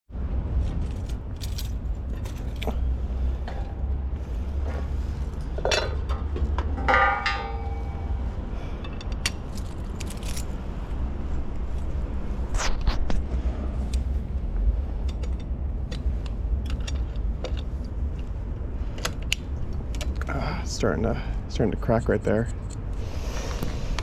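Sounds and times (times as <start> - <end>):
steady low rumble: 0.1 - 24.0
metallic clicks and jangles: 0.8 - 2.9, 8.8 - 10.6, 15.0 - 18.4, 21.7 - 23.0.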